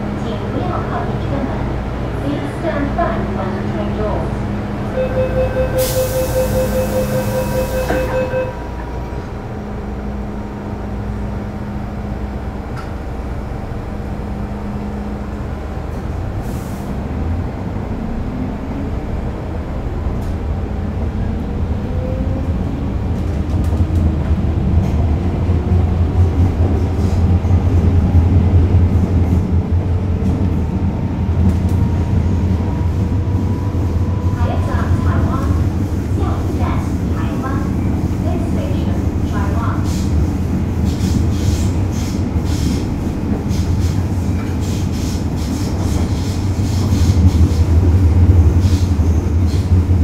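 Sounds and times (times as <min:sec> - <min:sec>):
train rumbling: 0:00.0 - 0:50.0
beeping tone: 0:05.0 - 0:08.7.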